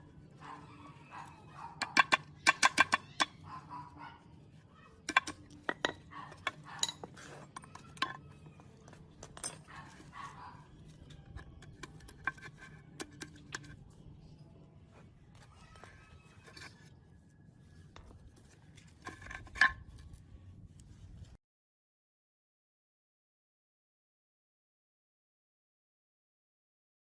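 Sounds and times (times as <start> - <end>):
metal parts clinking: 5.0 - 8.3, 8.9 - 10.1.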